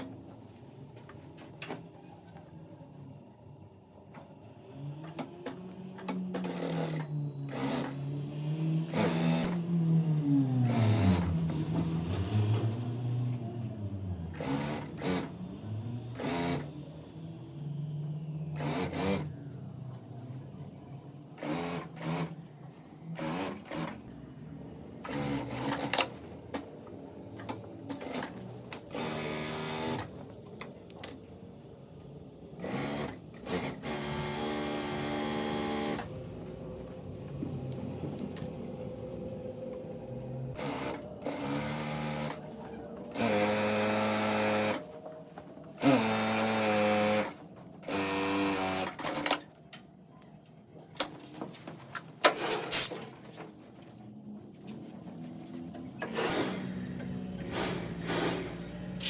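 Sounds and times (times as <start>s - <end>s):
sewing machine motor humming: 4.5s - 19.4s, 21.4s - 22.4s, 23.1s - 24.2s, 25.0s - 26.2s, 27.9s - 30.2s, 32.6s - 36.1s, 40.6s - 42.4s, 43.0s - 44.9s, 45.8s - 49.4s.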